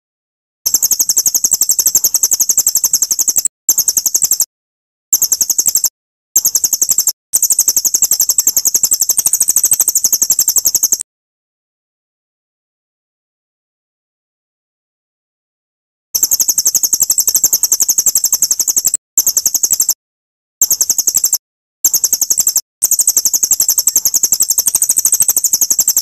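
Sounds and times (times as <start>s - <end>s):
high-pitched songbird trill: 0.7s - 4.5s, 5.2s - 11.0s, 16.2s - 20.0s, 20.6s - 26.0s.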